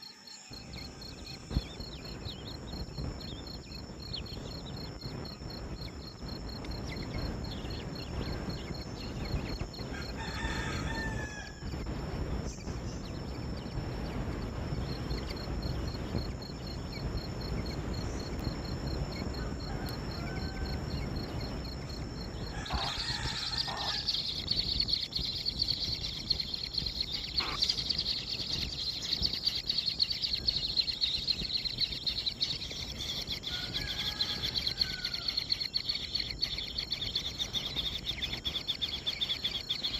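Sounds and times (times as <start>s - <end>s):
insect chirring: 0.0s - 39.9s
low background rumble: 0.6s - 39.9s
short bird calls: 27.2s - 28.1s.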